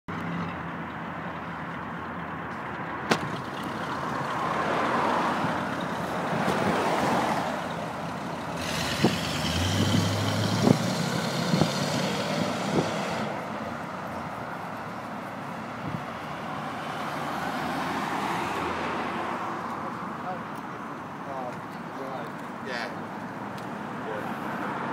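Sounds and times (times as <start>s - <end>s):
cars driving past: 0.1s - 24.9s
sharp knocks: 3.1s - 3.4s.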